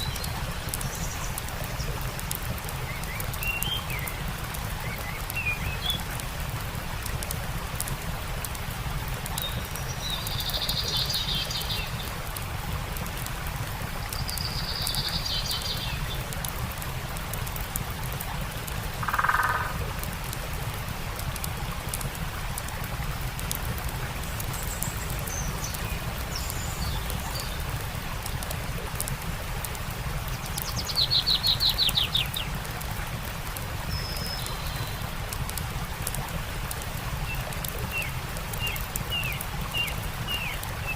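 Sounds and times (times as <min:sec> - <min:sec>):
songbirds calling: 0:00.0 - 0:06.2, 0:09.3 - 0:12.2, 0:14.0 - 0:16.3, 0:18.9 - 0:19.8, 0:24.2 - 0:27.8, 0:30.3 - 0:32.6, 0:37.2 - 0:40.9
campfire crackling: 0:00.0 - 0:40.9
stream rushing: 0:00.0 - 0:40.9.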